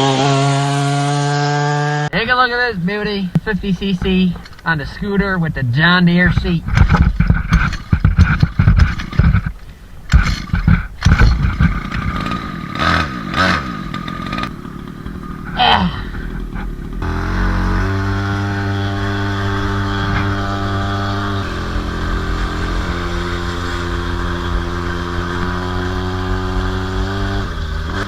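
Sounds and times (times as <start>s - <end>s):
two-stroke scooter engine revving: 0.0s - 2.3s, 10.1s - 28.0s.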